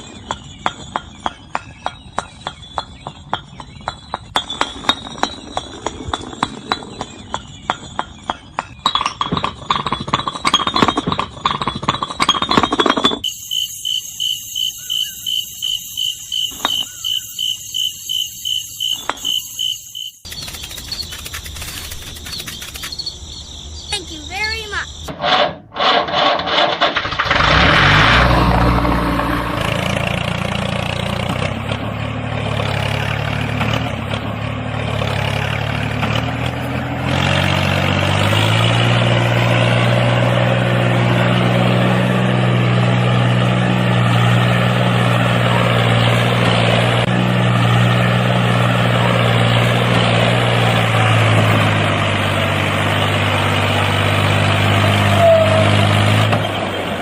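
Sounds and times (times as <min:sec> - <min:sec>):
small tractor engine running: 0:20.2 - 0:23.0, 0:26.1 - 0:57.0.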